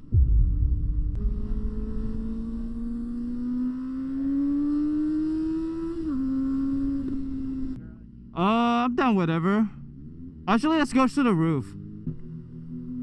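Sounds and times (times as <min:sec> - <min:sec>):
low rumble: 0:00.0 - 0:04.0
motorcycle engine revving: 0:01.1 - 0:07.8.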